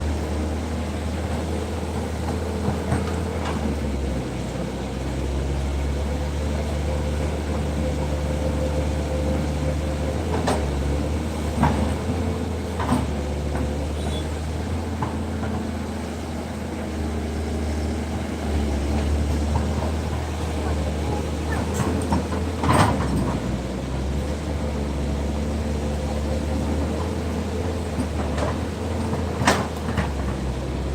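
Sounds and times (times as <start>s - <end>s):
construction machinery engines running: 0.0s - 30.9s.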